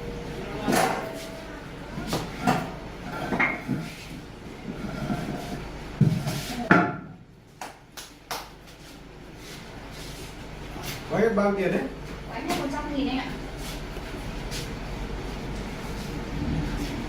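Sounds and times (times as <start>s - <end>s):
objects knocking and clunking: 2.0s - 7.2s.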